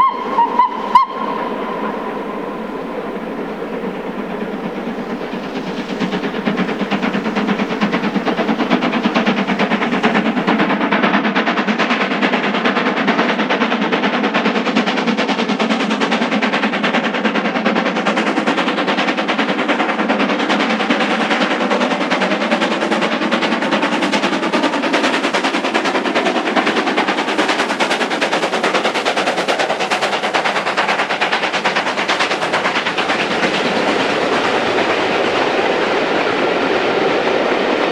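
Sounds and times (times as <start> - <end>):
coaches running on rails: 0.0 - 11.0, 23.9 - 37.9
steam locomotive chuffing: 0.0 - 37.9.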